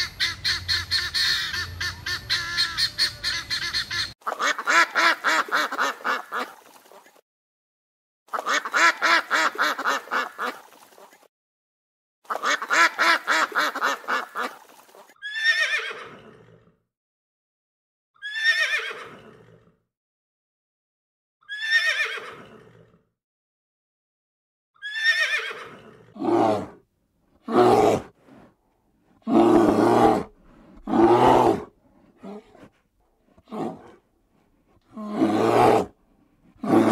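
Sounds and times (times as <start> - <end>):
horse whinnying: 15.2 - 16.7, 18.2 - 19.6, 21.5 - 22.9, 24.8 - 26.8, 27.5 - 28.1, 29.2 - 32.7, 33.4 - 34.0, 34.9 - 35.9, 36.6 - 36.9.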